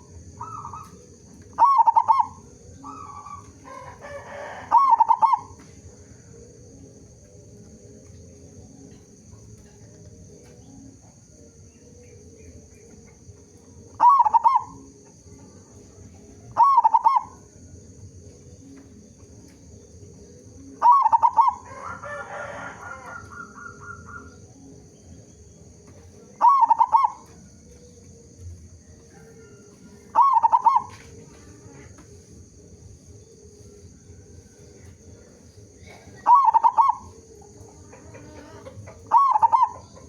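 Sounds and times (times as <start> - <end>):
dove cooing calls: 0.0 - 6.3, 11.9 - 17.8, 18.5 - 24.7, 25.4 - 32.2, 33.4 - 40.0
quieter longer bird call: 35.8 - 37.2.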